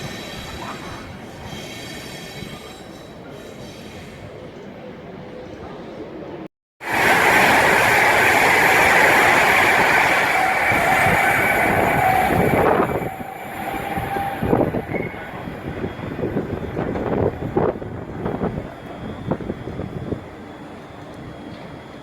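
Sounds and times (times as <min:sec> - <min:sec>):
train rushing past with whine: 0:06.8 - 0:22.0.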